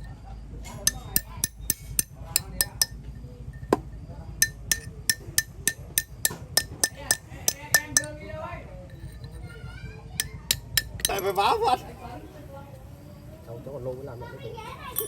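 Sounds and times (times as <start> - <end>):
hammer blows on metal: 0.7 - 3.8, 4.4 - 8.2.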